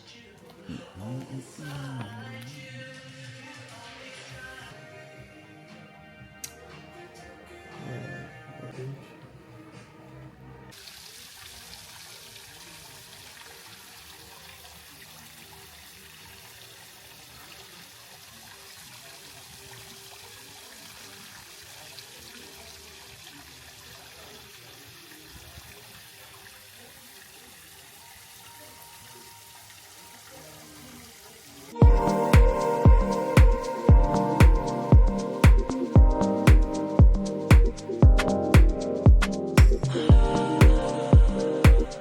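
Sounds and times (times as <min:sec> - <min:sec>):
steady rushing hiss: 0:31.8 - 0:42.0.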